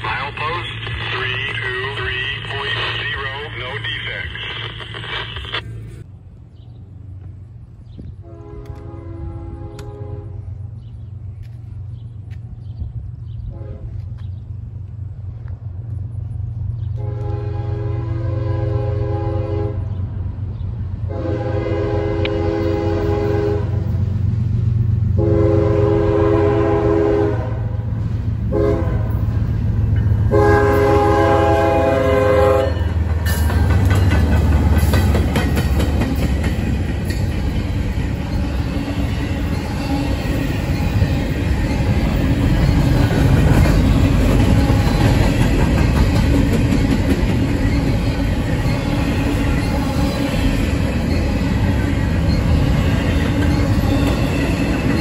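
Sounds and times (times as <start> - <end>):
diesel engines rumbling: 0.0 - 55.0
locomotive horn blasts: 8.2 - 10.5, 13.5 - 14.0, 17.0 - 19.9, 21.1 - 23.9, 25.2 - 27.8, 28.5 - 29.2, 30.3 - 33.0
train wheels clattering over rail joints: 33.0 - 38.5, 40.4 - 49.8.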